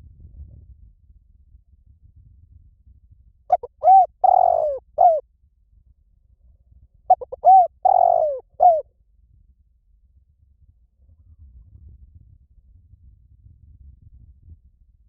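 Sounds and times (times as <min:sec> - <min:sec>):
dove cooing: 0:03.5 - 0:05.2, 0:07.1 - 0:08.8.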